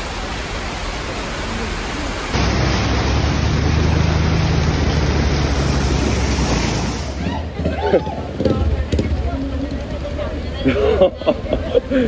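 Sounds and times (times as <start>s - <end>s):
heavy rain pouring: 0.0s - 7.8s
scooter pushing through floodwater: 1.1s - 11.0s.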